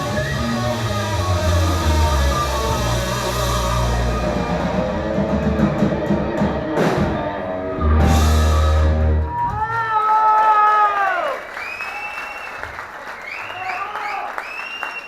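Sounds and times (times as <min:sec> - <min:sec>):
rock band playing live: 0:00.0 - 0:09.7.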